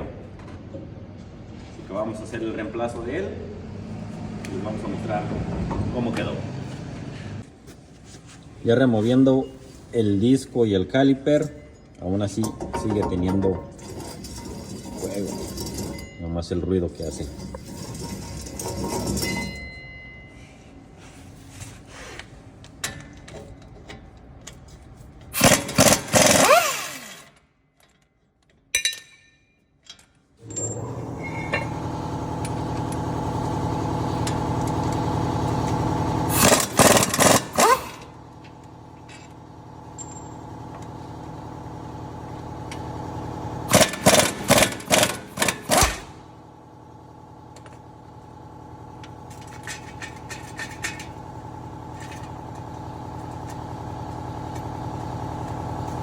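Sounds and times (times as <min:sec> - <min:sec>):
steady mechanical hum: 0:00.0 - 0:56.0
impact wrench hammering: 0:25.4 - 0:27.3, 0:36.3 - 0:38.1, 0:43.7 - 0:46.2.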